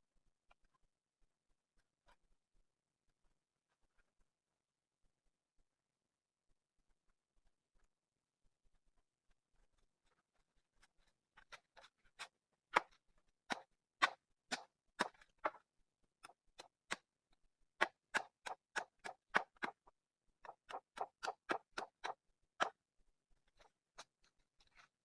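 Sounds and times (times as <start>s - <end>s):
sharp taps or clicks: 17.8s - 19.8s, 20.4s - 22.8s.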